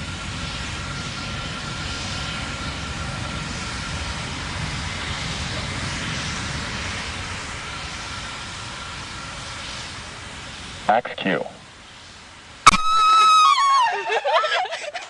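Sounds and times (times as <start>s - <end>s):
rocket engines roaring: 0.0s - 15.0s.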